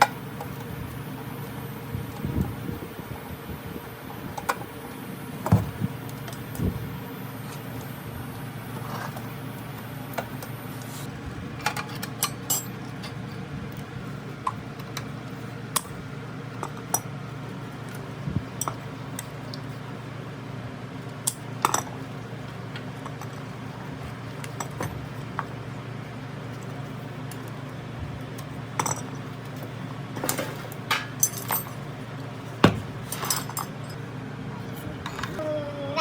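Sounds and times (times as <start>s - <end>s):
metal parts clicking and clinking: 11.6s - 13.2s, 30.2s - 31.8s, 33.0s - 34.0s
heavier knocks: 32.6s - 33.0s.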